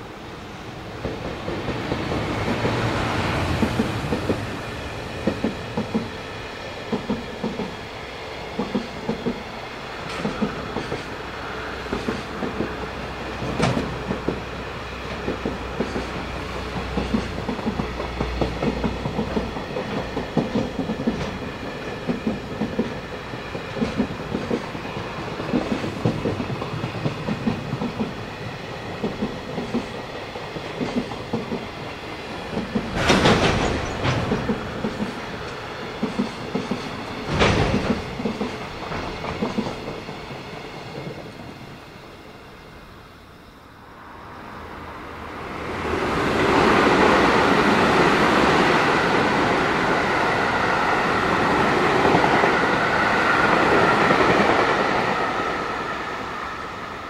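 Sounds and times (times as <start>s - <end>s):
electric locomotive passing: 0.0s - 57.0s
wheels clacking over rail joints: 1.0s - 6.2s, 11.9s - 41.3s.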